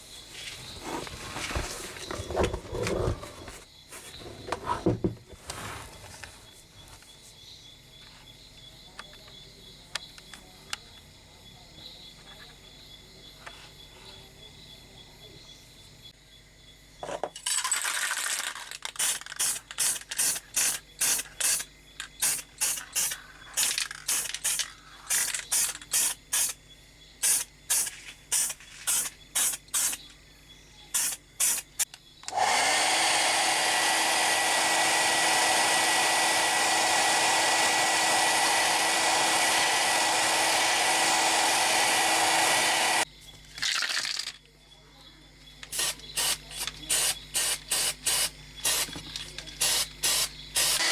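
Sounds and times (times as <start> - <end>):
small power tool motor running: 31.0 - 43.1, 45.8 - 50.9.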